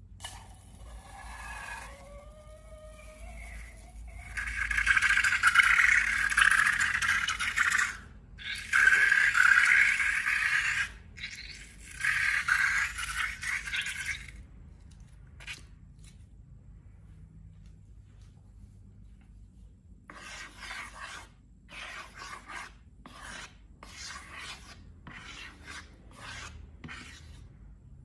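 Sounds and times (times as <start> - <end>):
scraping strokes: 19.2 - 27.6.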